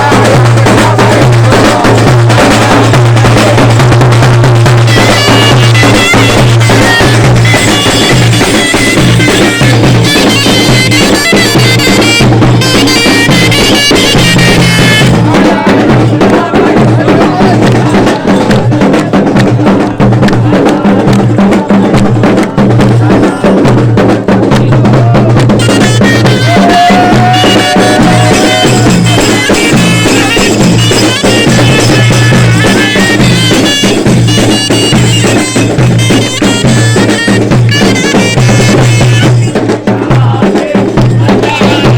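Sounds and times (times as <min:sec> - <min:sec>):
drums beating: 0:00.0 - 0:41.9
bagpipes playing folk melody: 0:04.9 - 0:15.0.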